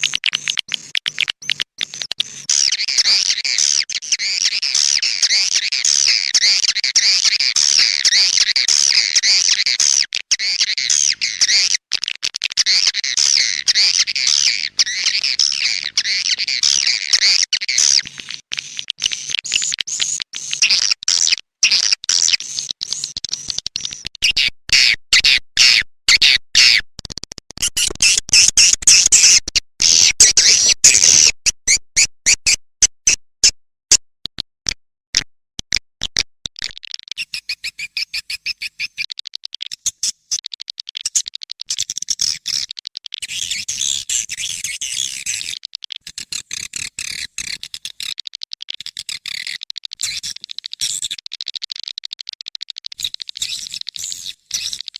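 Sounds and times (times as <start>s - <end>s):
swiftlet chirps and twittering: 12.7s - 18.0s, 37.2s - 39.1s.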